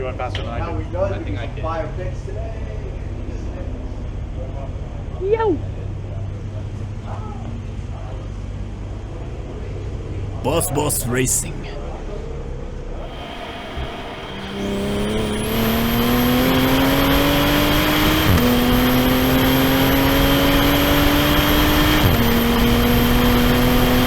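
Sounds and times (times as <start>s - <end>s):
car engine accelerating hard: 14.2s - 24.0s.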